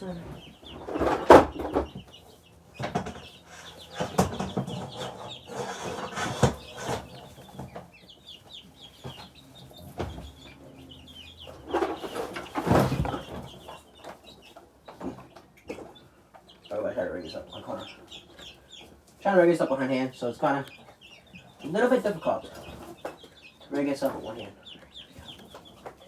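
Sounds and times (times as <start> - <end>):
chicks and ducklings peeping: 0.0 - 26.0
rustling and knocks of handling: 0.3 - 10.6, 11.5 - 16.5.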